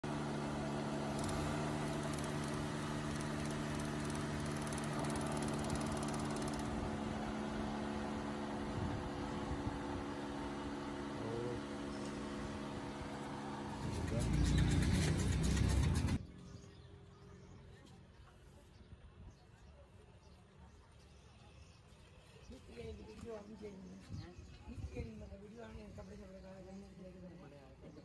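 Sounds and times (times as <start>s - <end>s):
car engine idling: 0.0s - 8.8s, 10.0s - 16.2s.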